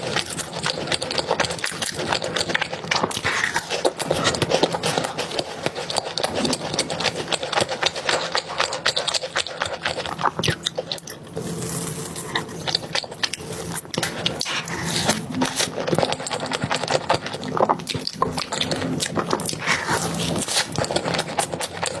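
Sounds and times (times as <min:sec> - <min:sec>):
chewing and wet mouth sounds: 0:00.0 - 0:22.0.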